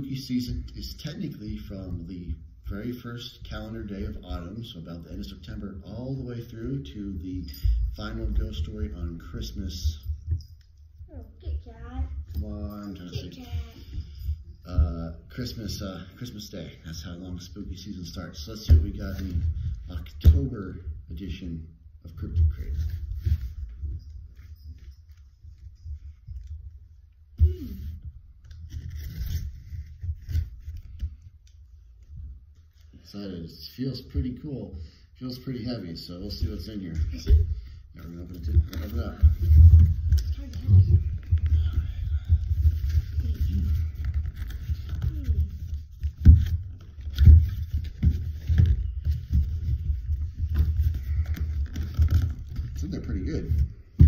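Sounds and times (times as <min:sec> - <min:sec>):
cardboard rustling and scraping: 0:27.7 - 0:31.3, 0:37.3 - 0:54.0
rumbling handling noise: 0:36.3 - 0:54.0.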